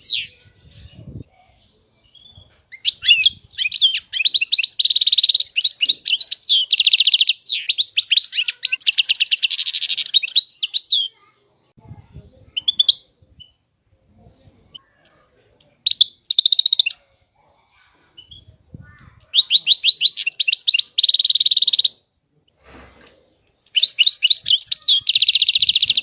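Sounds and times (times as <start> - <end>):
goldfinch twittering song: 2.0 - 11.2, 18.2 - 22.0, 23.0 - 26.0.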